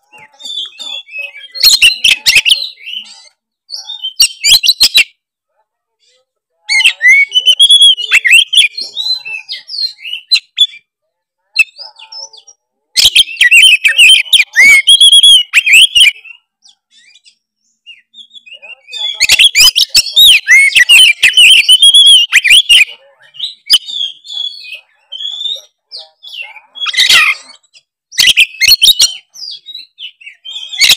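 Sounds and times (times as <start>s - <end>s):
songbird singing: 0.0s - 5.4s, 6.6s - 30.9s.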